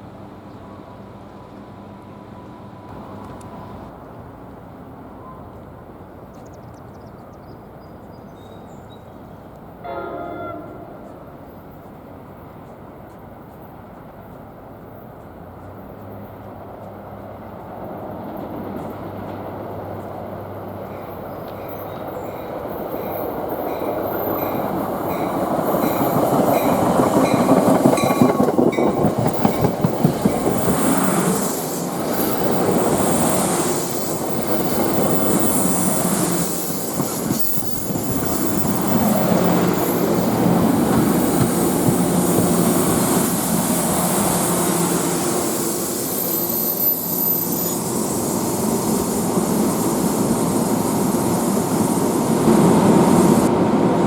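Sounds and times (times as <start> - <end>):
train wheels squealing on rail: 5.0 - 16.4, 18.0 - 53.6
train wheels clacking over rail joints: 20.8 - 44.1.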